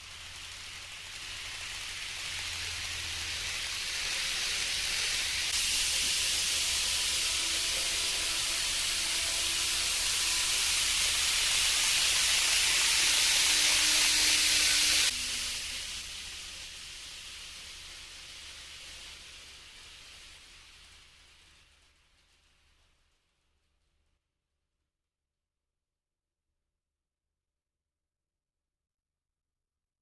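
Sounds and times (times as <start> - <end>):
model train running on track: 0.0 - 23.0.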